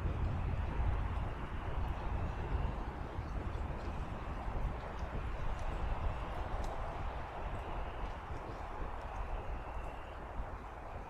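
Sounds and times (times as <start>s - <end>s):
low wind rumble: 0.0s - 11.0s.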